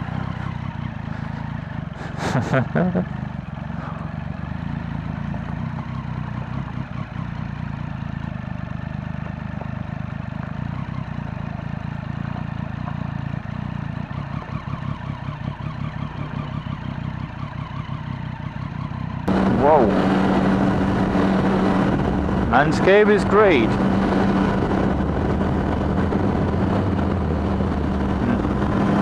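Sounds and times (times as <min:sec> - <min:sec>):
motorcycle engine running: 0:00.0 - 0:29.0
wind noise: 0:19.3 - 0:29.0.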